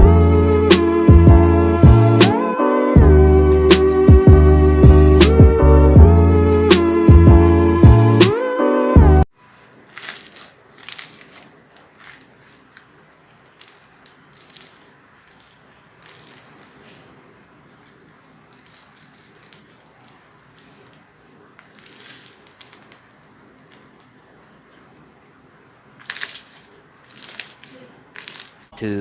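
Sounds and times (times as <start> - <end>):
slime squishing: 9.4 - 28.8.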